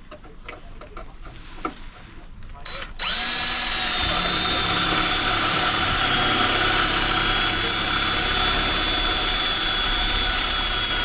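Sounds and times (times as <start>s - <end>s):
electric drill drilling steel: 3.0s - 11.0s.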